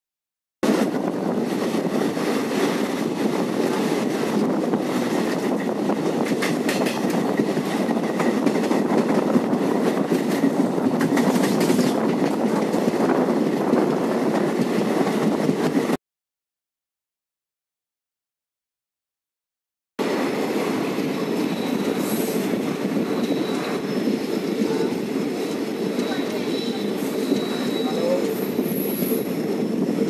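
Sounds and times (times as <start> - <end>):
rumble of wheels on rails: 0.6 - 16.0, 20.0 - 30.0
sharp clacks: 6.2 - 7.2, 11.0 - 12.4.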